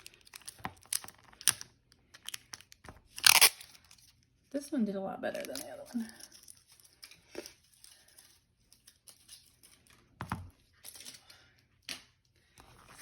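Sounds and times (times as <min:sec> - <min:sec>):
slime crinkling and squishing: 0:00.0 - 0:04.4.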